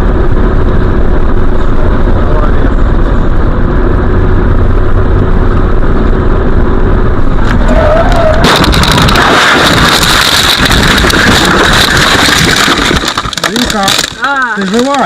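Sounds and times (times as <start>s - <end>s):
car interior road rumble: 0.0s - 15.0s
car crash impacts: 7.4s - 15.0s.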